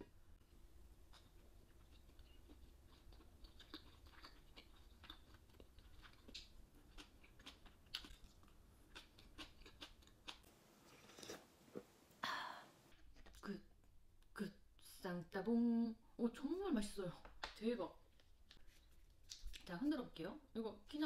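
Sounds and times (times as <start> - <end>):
mouth chewing with wet smacks: 1.1 - 11.8.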